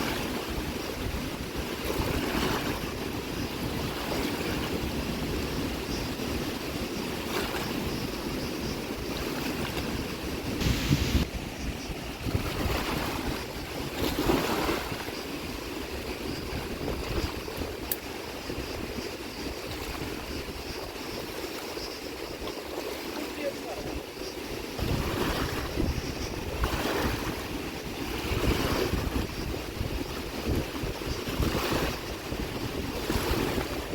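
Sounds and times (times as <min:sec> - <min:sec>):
wind buffeting microphone: 0:00.0 - 0:33.9
water rushing: 0:09.0 - 0:33.9.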